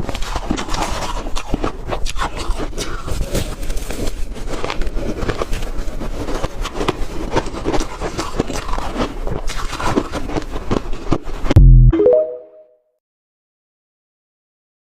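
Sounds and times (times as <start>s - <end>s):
ice being chewed: 0.0s - 11.5s.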